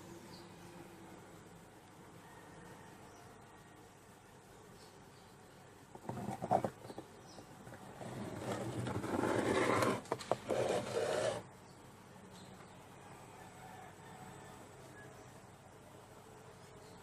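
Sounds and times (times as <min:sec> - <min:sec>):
scraping on wood: 0:05.9 - 0:11.5.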